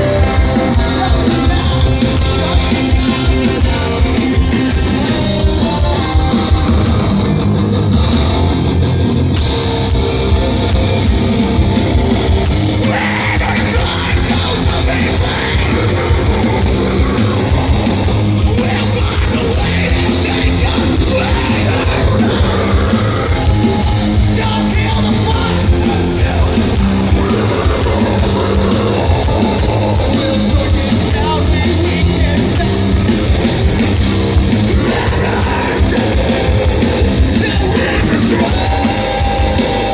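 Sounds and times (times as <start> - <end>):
bass guitar: 0.0 - 39.9
distorted electric guitars: 0.0 - 39.9
fast drums: 0.0 - 39.9
person singing and screaming: 12.8 - 32.9, 34.4 - 39.9.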